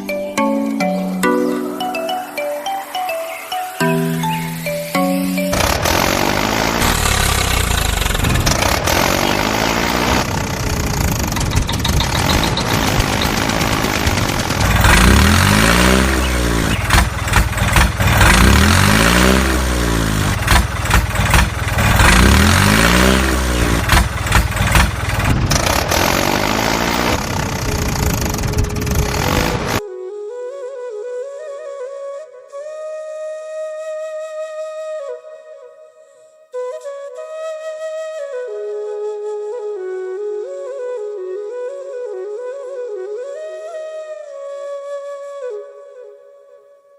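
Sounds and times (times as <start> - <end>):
tractor engine revving: 5.4 - 29.8.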